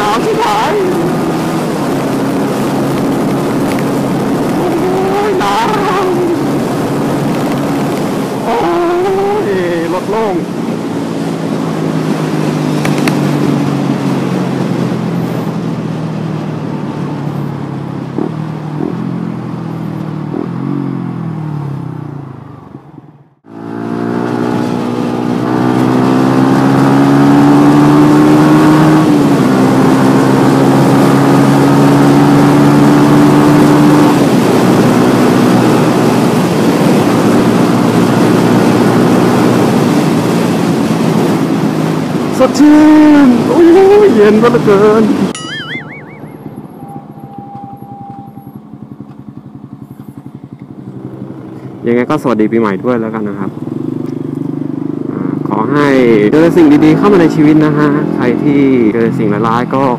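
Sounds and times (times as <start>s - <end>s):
motorcycle engine: 0.0s - 59.9s.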